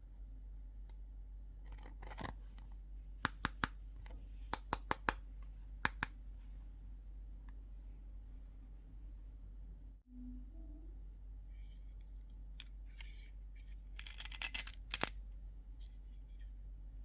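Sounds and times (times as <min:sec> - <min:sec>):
small objects clicking: 0:12.6 - 0:15.2.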